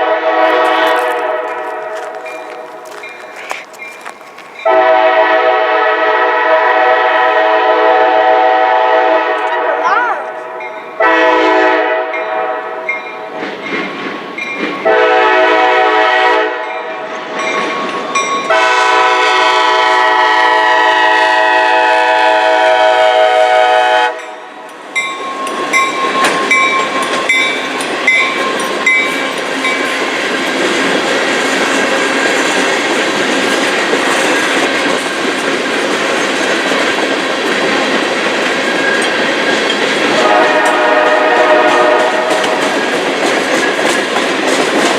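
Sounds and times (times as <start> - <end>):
train horn blast: 0.0 - 2.2, 4.6 - 9.8, 11.0 - 12.9, 14.8 - 17.0, 18.5 - 24.4, 40.1 - 42.7
train rumbling past: 0.0 - 44.9
wheels clacking over rails: 13.3 - 14.9, 25.0 - 44.9.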